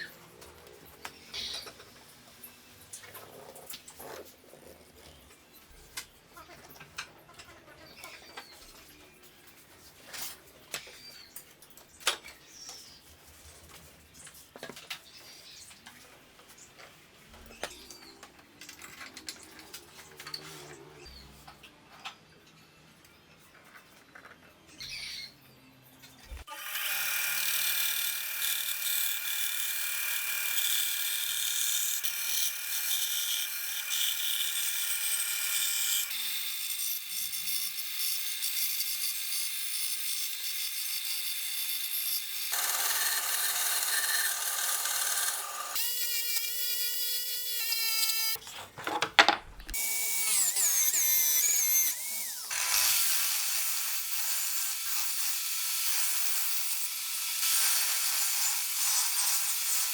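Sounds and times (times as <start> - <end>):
power saw sawing wood: 41.9 - 48.4
power drill drilling: 42.5 - 46.5.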